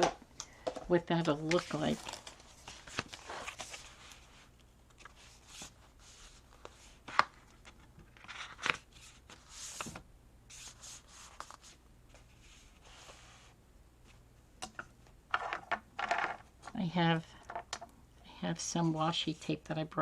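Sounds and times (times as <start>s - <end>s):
paper rustling: 1.3s - 13.3s.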